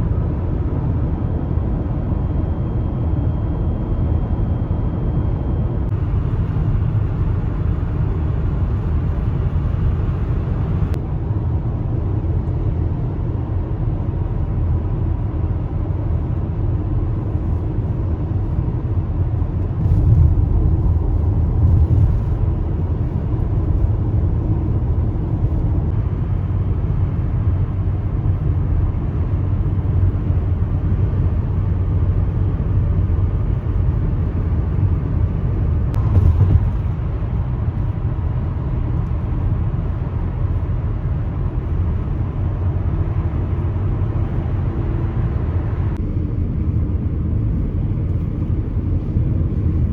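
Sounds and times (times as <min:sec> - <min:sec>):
car driving rumble: 0:00.0 - 0:49.9.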